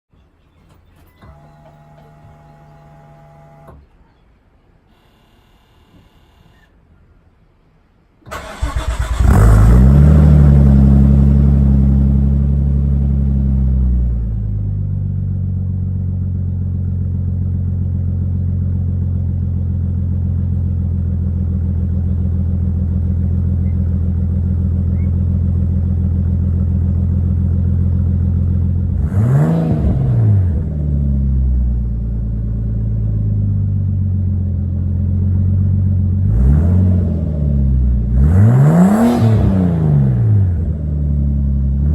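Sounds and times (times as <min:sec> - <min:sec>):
engine throttle blips: 0:00.5 - 0:04.2, 0:04.9 - 0:06.8, 0:08.2 - 0:41.9
car engine idling: 0:08.2 - 0:38.4, 0:39.5 - 0:41.9.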